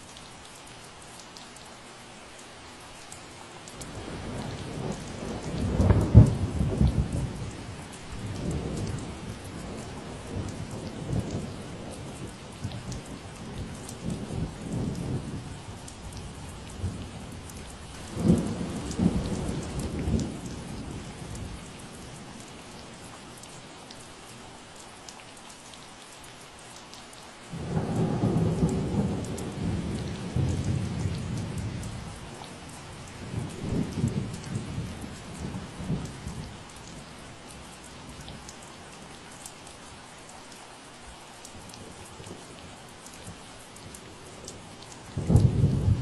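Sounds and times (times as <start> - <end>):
steady rain falling: 0.0 - 46.0
thunder rumbling: 16.2 - 22.2, 27.5 - 36.4, 45.2 - 46.0.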